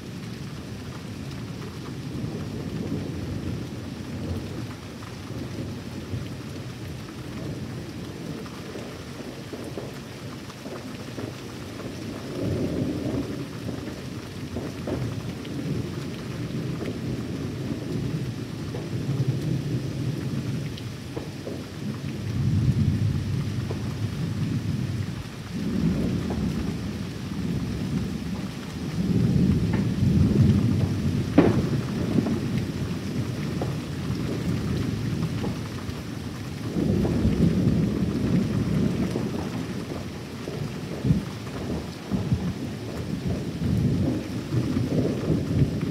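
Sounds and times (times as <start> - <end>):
steady rain: 0.0 - 45.9
low rolling thunder: 10.6 - 45.9
sharp thunder crack: 29.1 - 32.5.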